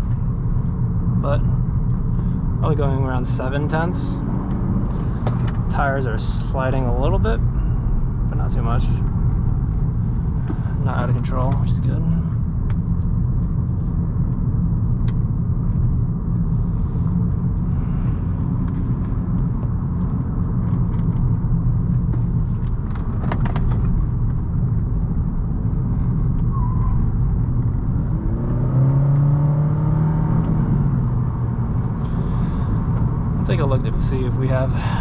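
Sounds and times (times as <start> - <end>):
car engine accelerating: 0.0 - 7.1, 14.1 - 34.7
road and tyre noise: 0.0 - 35.0.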